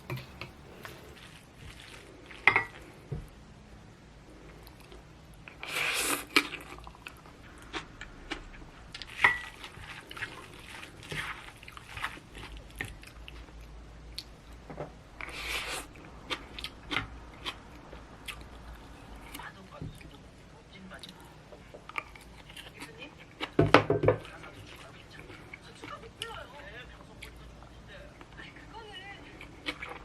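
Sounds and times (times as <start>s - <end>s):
chewing with crunchy bites: 0.0s - 2.5s, 4.6s - 14.6s, 15.2s - 20.1s, 21.0s - 23.6s, 29.3s - 30.0s.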